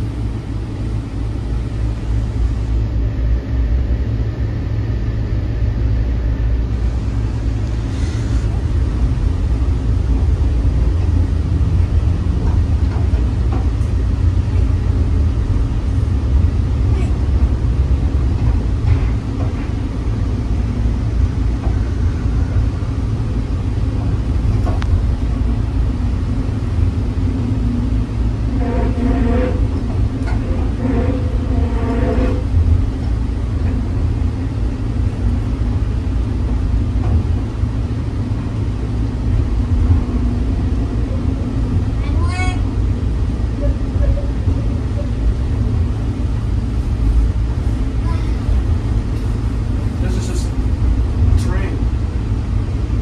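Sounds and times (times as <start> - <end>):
train low rumble: 0.0 - 53.0.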